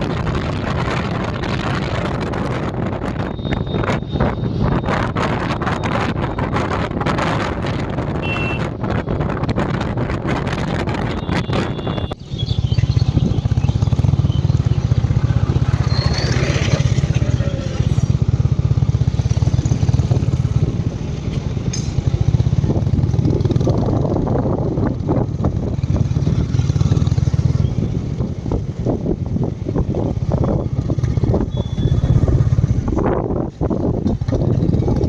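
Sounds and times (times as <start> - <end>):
wind noise: 0.0 - 35.0
motorcycle engine running: 11.1 - 35.0.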